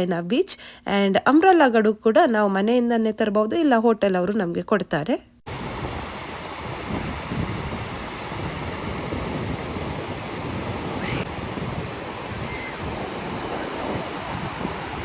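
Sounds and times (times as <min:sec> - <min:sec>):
ocean surf washing ashore: 0:05.5 - 0:15.0
wind buffeting microphone: 0:05.5 - 0:15.0.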